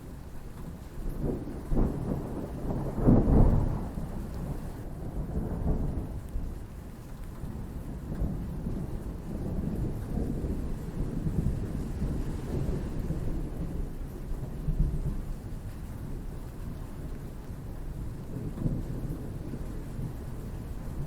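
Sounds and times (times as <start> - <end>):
steady rain: 0.0 - 21.0
thunder rumbling: 1.2 - 6.3.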